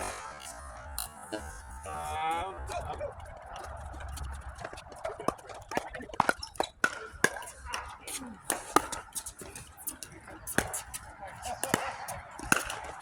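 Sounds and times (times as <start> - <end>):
faint background voices: 0.0 - 13.0
ball bouncing: 3.1 - 13.0
paddles striking plastic ball: 4.6 - 13.0.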